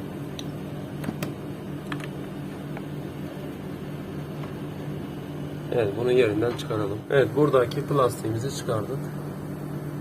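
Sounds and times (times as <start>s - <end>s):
air conditioner unit humming: 0.0s - 10.0s.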